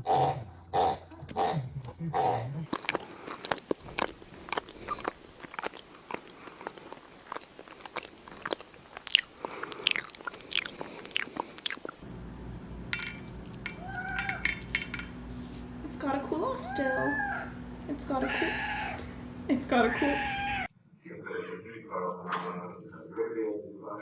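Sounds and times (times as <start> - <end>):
steady low hum: 0.0 - 20.7
pet crunching food: 2.7 - 12.2, 12.9 - 15.2.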